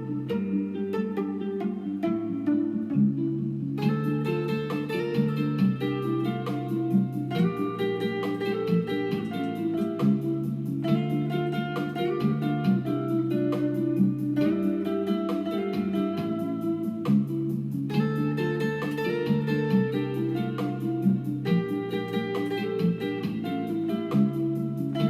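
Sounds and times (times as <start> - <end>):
guitar playing: 0.0 - 25.0.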